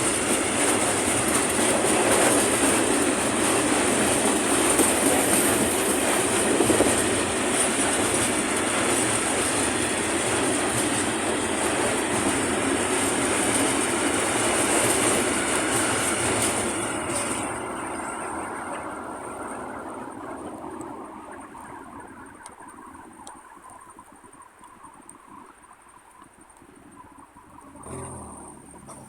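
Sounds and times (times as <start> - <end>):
train wheels clattering on rails: 0.0 - 19.8.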